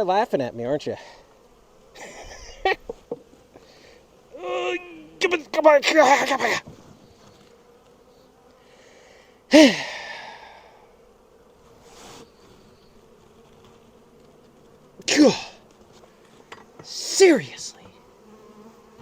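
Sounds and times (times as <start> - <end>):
bees humming: 0.7 - 19.0
man sighing: 8.8 - 10.8, 15.1 - 15.6.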